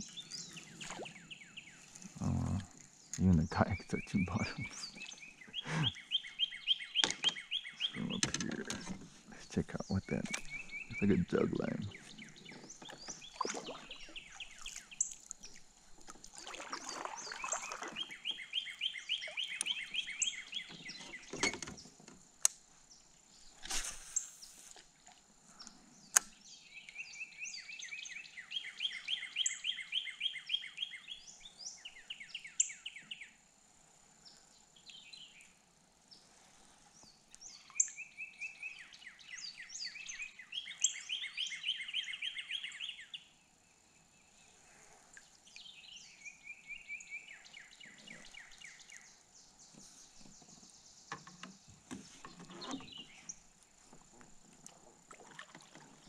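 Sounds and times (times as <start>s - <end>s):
songbird trilling: 0.0s - 8.9s, 9.7s - 15.1s, 17.0s - 21.6s
short swishes: 23.6s - 24.3s.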